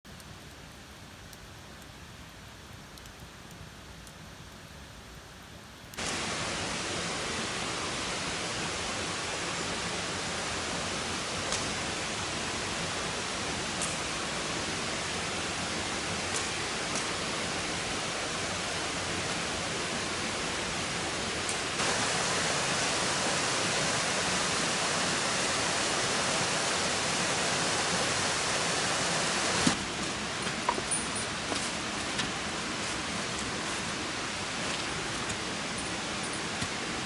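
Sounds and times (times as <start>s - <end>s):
faint ticks: 0.1s - 1.9s, 2.7s - 5.2s.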